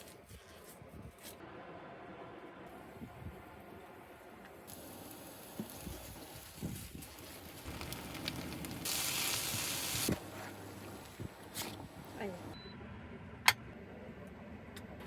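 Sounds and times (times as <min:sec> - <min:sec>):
food sizzling in a pan: 0:04.7 - 0:11.2.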